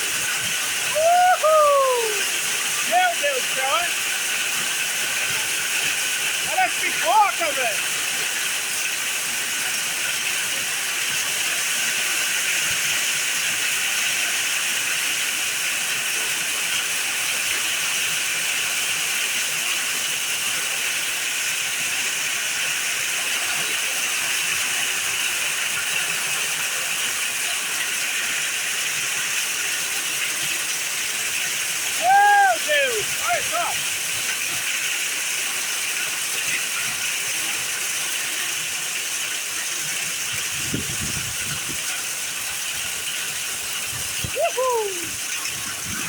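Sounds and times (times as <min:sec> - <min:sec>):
heavy rain pouring: 0:00.0 - 0:46.0.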